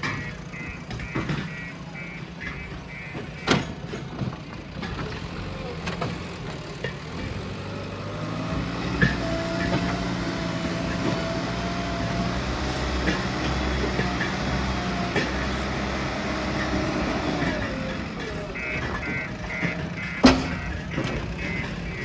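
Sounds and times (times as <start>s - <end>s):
diesel engine running: 0.0s - 22.0s
sharp metal knock: 20.2s - 20.8s.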